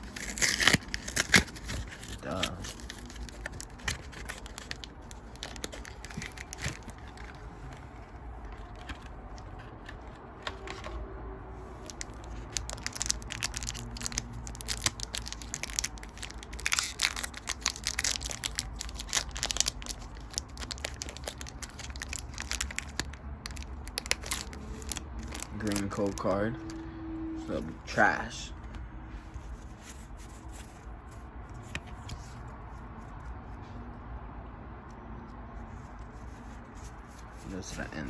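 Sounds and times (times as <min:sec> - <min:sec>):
foil wrappers crinkling and tearing: 0:00.0 - 0:07.5, 0:11.8 - 0:26.4
trading cards handled: 0:00.0 - 0:11.1, 0:28.6 - 0:33.7.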